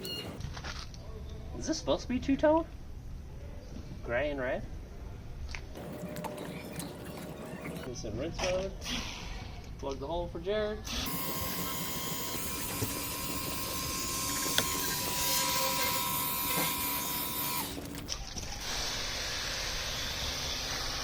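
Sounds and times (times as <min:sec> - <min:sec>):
electric motor whine: 0:10.9 - 0:18.1.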